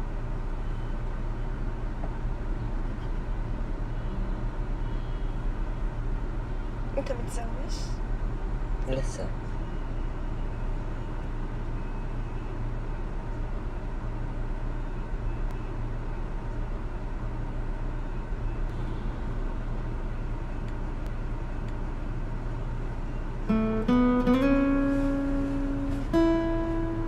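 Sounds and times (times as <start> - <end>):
car interior rumble: 0.0 - 27.0
plucked acoustic guitar: 23.5 - 27.0.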